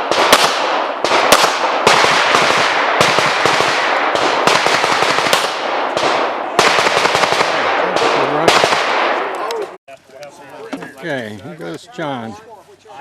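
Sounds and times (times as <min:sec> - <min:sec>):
pistol shots: 0:00.0 - 0:09.5.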